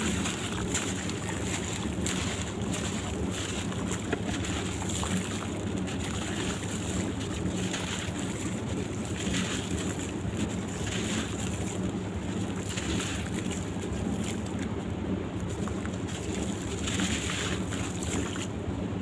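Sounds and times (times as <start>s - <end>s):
blocks crumbling in water: 0.0s - 14.8s.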